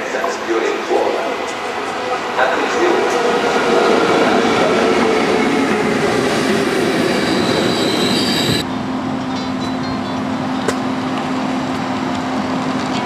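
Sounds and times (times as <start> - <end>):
train wheels rumbling on rail: 0.0 - 13.0
high wheel squeal: 6.4 - 8.6.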